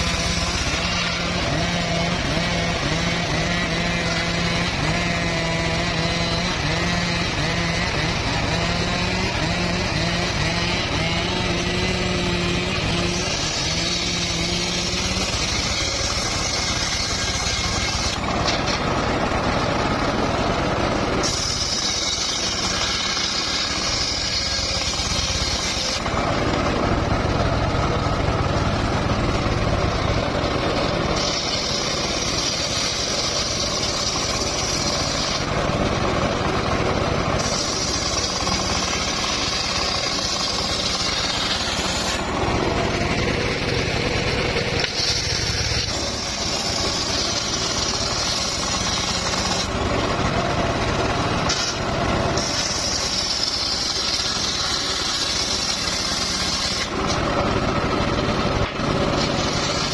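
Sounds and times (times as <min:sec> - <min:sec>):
power saw cutting wood: 0:00.0 - 0:59.9.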